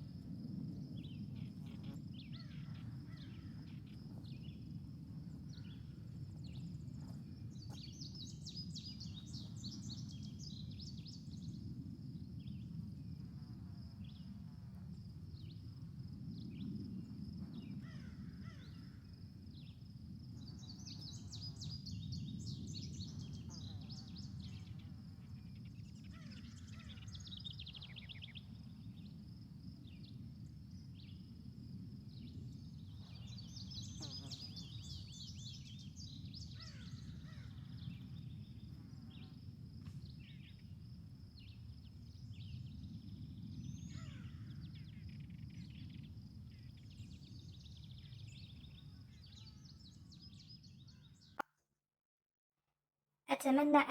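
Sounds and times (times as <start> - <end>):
small birds chirping: 6.5 - 11.3.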